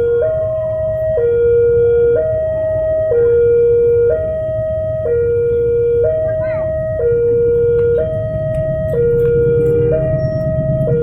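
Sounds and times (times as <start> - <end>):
two-tone crossing alarm: 0.0 - 11.0
low rumble: 4.9 - 11.0.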